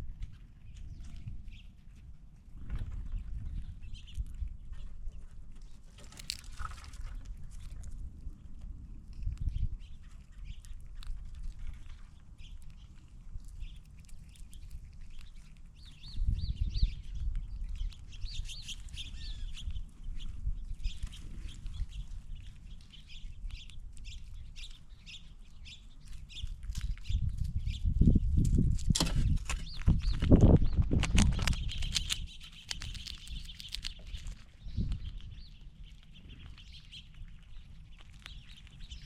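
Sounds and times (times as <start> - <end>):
birds chirping: 9.1 - 28.3, 29.5 - 39.0.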